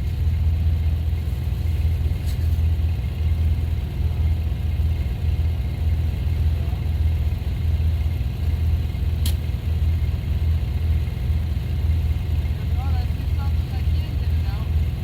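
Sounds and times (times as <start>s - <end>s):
engine rumbling rhythmically: 0.0s - 15.0s
sharp click: 9.2s - 9.4s.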